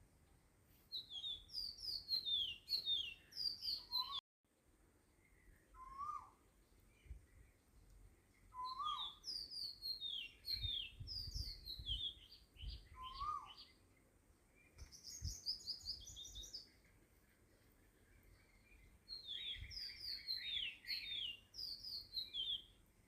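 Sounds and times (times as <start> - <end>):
small birds chirping: 0.8 - 4.2, 5.0 - 23.0
bird trill: 0.9 - 4.2, 5.4 - 6.4, 8.5 - 13.8, 14.6 - 16.8, 18.2 - 22.8
bird whistled note: 5.8 - 6.4.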